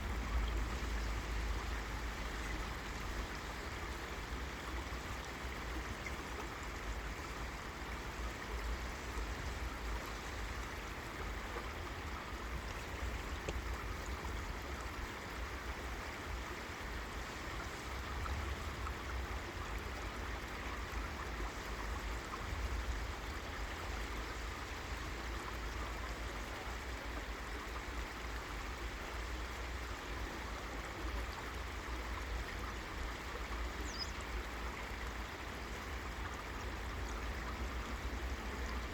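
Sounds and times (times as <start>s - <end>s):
river water over rocks: 0.0s - 38.9s.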